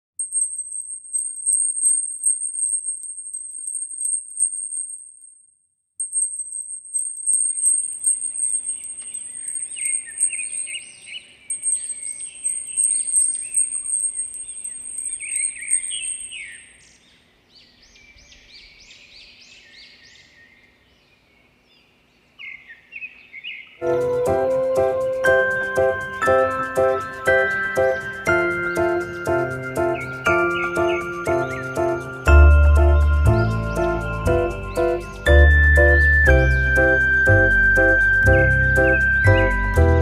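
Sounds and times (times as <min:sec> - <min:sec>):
birds chirping: 0:06.1 - 0:40.0
high steady ringing tone: 0:23.8 - 0:40.0.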